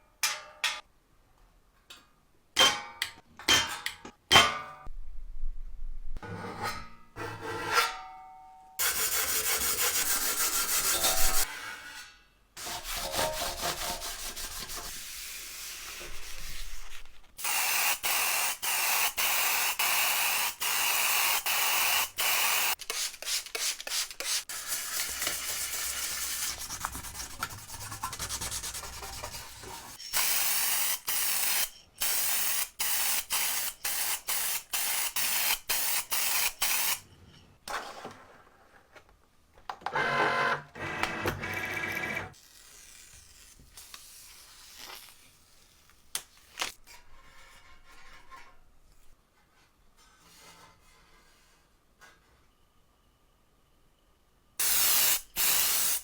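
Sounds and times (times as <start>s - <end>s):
sanding and rubbing: 8.8s - 11.5s, 12.6s - 17.0s, 22.9s - 30.0s.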